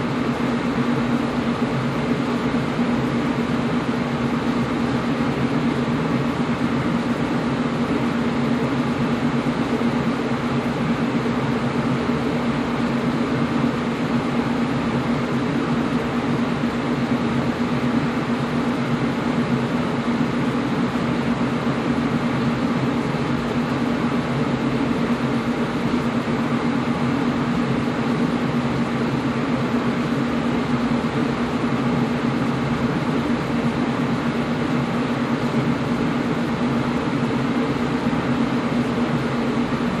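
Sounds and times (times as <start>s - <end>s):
air conditioner running: 0.0s - 40.0s.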